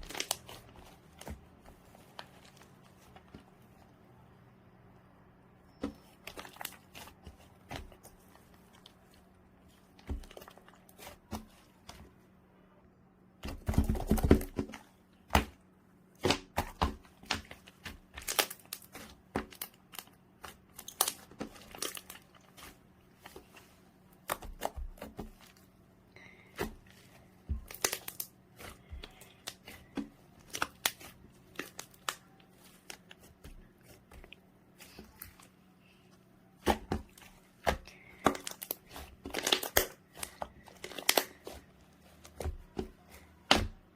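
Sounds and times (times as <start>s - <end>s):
slime squishing: 0.0s - 4.4s, 5.5s - 12.6s, 13.4s - 43.9s
sticky slime clicks and crackles: 37.6s - 41.6s.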